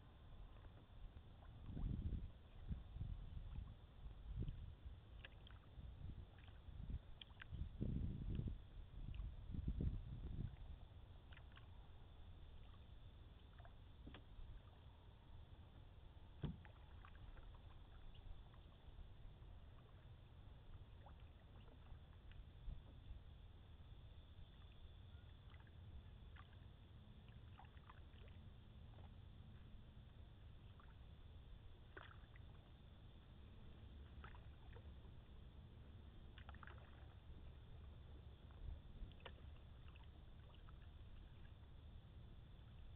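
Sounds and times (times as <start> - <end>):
canoe paddling on calm water: 0.0 - 42.9
water drips: 7.2 - 7.6.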